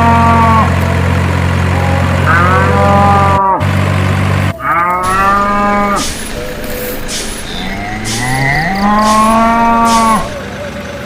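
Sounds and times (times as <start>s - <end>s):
cow mooing: 0.0s - 0.8s, 1.7s - 3.8s, 4.5s - 10.4s
low engine hum: 0.0s - 11.0s.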